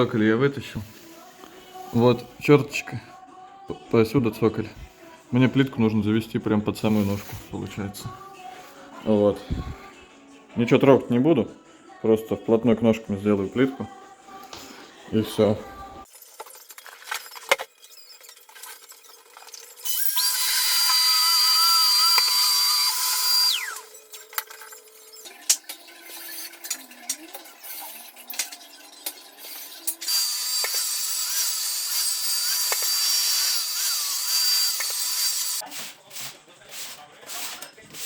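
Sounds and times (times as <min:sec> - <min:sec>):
power tool whining: 0:20.2 - 0:23.9, 0:30.0 - 0:35.6.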